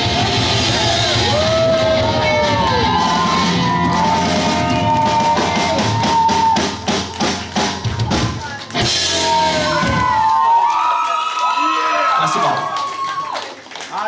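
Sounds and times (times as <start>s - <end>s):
live punk band playing: 0.0s - 10.4s.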